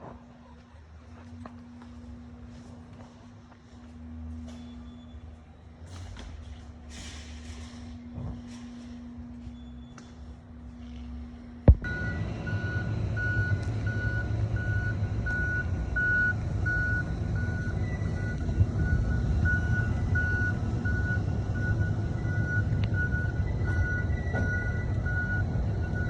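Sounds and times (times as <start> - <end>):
truck engine rumbling: 0.0 - 26.0
reversing beeper beeps: 4.4 - 5.8, 7.0 - 26.0.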